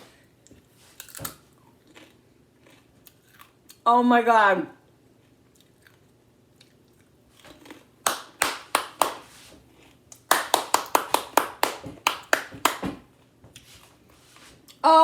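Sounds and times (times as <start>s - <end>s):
hands clapping: 8.0s - 9.4s, 10.2s - 13.0s.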